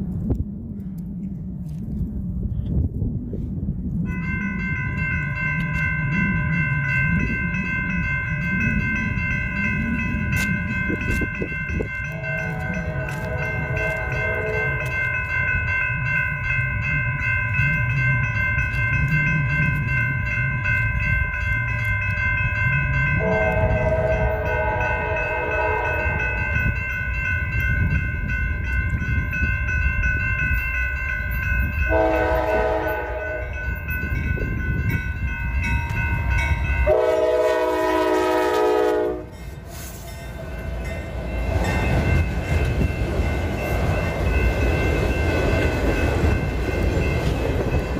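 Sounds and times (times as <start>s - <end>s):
freight train rumbling: 0.0s - 47.9s
crossing-signal bells ringing: 4.0s - 47.9s
train air horn blasts: 12.1s - 14.9s, 23.2s - 26.6s, 31.9s - 33.6s, 36.8s - 40.1s.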